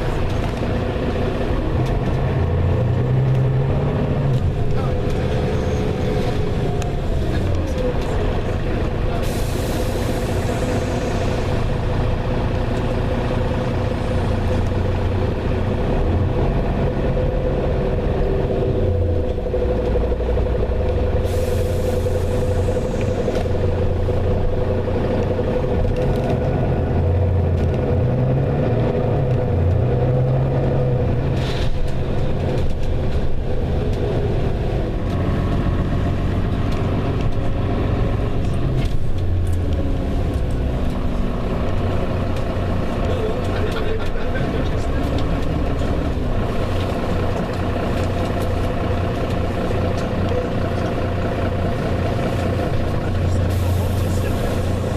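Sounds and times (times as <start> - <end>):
bus diesel engine humming: 0.0 - 54.9
air brakes hissing: 9.2 - 11.9, 21.2 - 23.9, 53.4 - 54.9.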